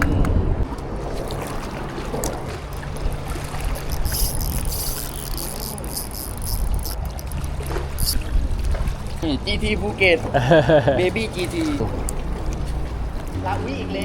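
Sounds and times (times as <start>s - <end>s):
low engine hum: 0.0s - 14.0s
running water: 0.6s - 14.0s.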